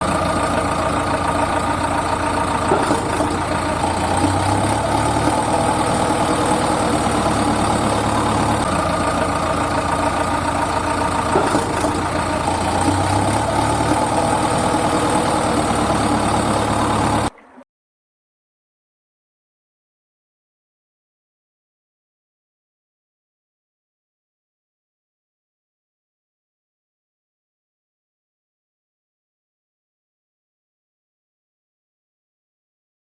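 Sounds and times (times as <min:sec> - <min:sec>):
heavy vehicle engine idling: 0:00.0 - 0:17.6.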